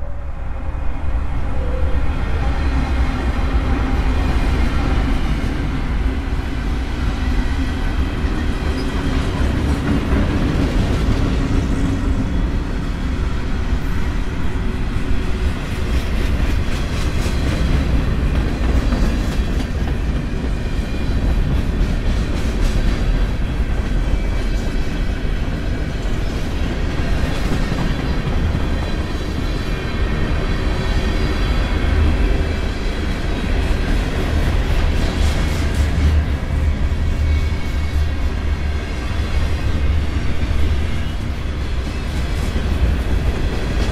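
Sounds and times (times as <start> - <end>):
diesel locomotives droning: 0.0 - 43.9.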